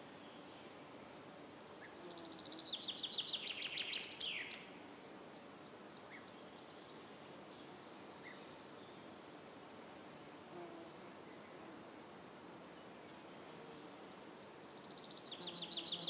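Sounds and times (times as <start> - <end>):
steady outdoor hiss: 0.0 - 16.0
songbird singing high trill: 15.0 - 16.0.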